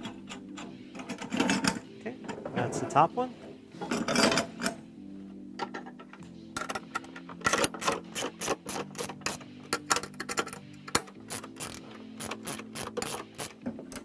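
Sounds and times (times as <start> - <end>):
metal clicking and rattling: 0.0 - 2.6, 5.6 - 14.0.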